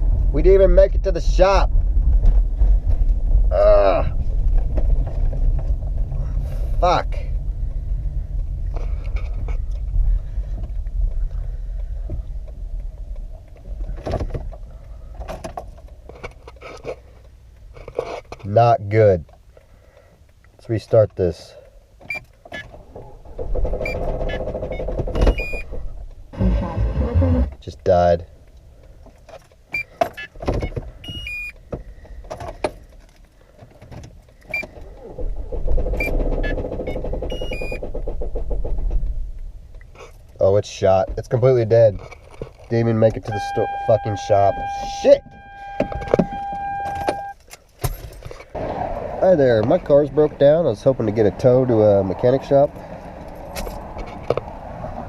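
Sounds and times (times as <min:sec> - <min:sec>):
car rolling rumble: 0:00.0 - 0:55.0
short noises: 0:22.1 - 0:27.7, 0:34.0 - 0:40.4
short electronic chimes: 0:43.3 - 0:47.4.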